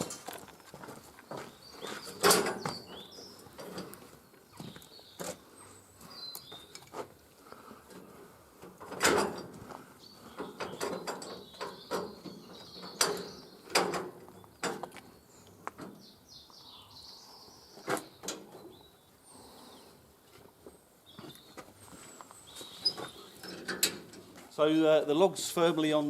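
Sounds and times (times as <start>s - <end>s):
metal clanks and knocks: 1.3s - 4.0s, 8.6s - 9.6s, 10.4s - 15.0s, 22.9s - 24.4s
bird chirps: 1.4s - 6.8s, 10.0s - 20.0s, 21.0s - 23.6s.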